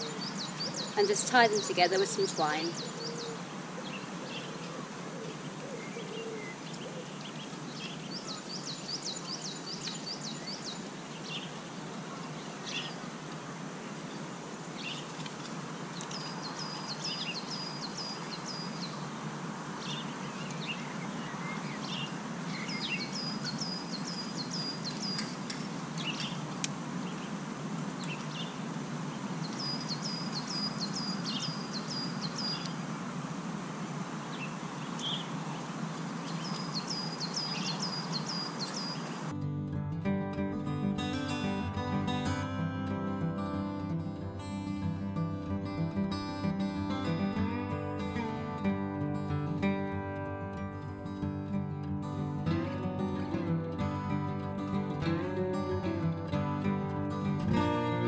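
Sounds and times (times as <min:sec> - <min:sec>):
small birds singing: 0:00.0 - 0:33.1, 0:34.0 - 0:39.3
outdoor background hiss: 0:00.0 - 0:58.0.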